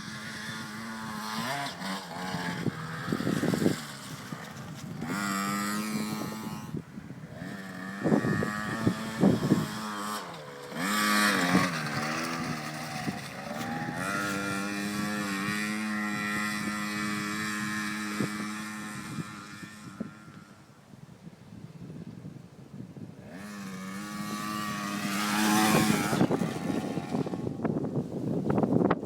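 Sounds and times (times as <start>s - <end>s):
two-stroke engine revving: 0.0s - 20.7s, 23.2s - 28.7s.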